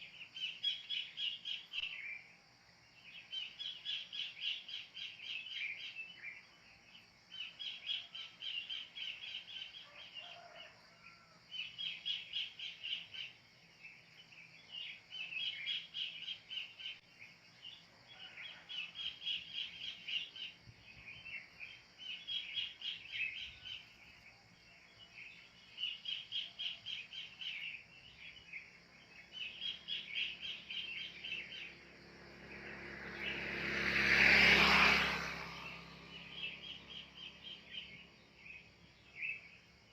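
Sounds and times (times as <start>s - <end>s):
engine-like rumble: 28.9s - 39.9s.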